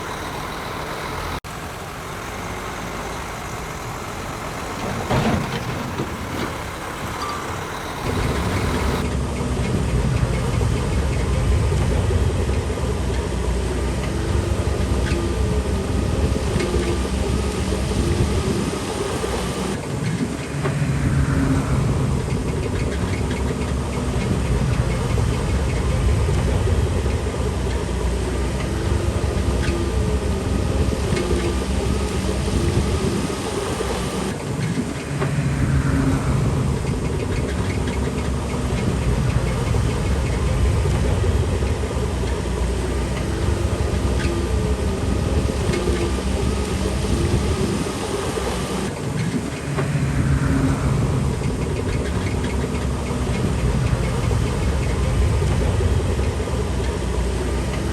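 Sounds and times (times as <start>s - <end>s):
metallic clanking: 0.0s - 9.0s
bulldozer diesel engine running: 0.0s - 20.1s, 21.1s - 57.9s.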